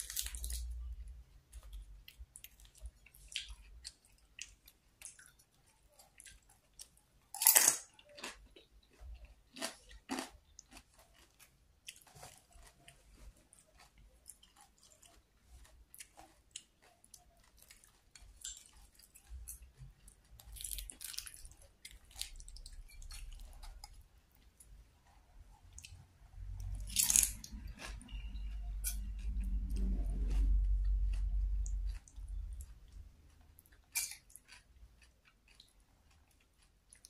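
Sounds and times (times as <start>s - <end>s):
person chewing and biting: 7.4s - 24.0s, 26.6s - 37.0s.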